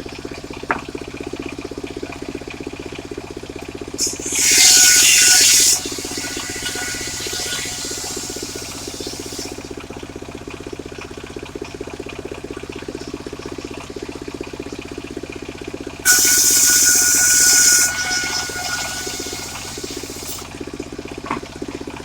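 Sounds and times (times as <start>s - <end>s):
saw blade cutting wood: 4.0s - 9.7s, 16.1s - 20.6s
circular saw engine running: 4.0s - 9.8s, 16.0s - 20.8s.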